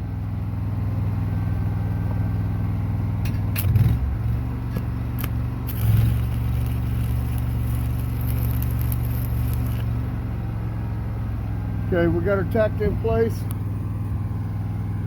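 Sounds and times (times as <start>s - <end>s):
engine running: 0.0s - 15.0s
welding arc crackling: 5.1s - 10.1s
electrode strikes: 5.7s - 9.9s.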